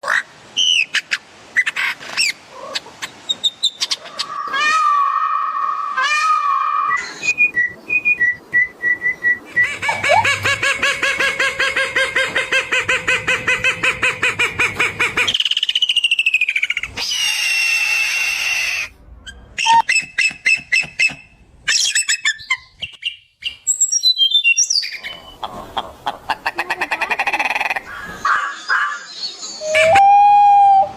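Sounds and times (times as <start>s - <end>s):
bird calls and songs: 19.3s - 25.5s, 27.8s - 30.9s.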